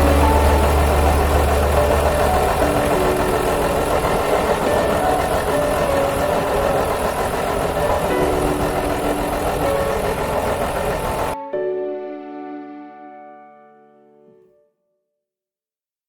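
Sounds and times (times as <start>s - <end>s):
diesel train engine rumbling: 0.0s - 11.4s.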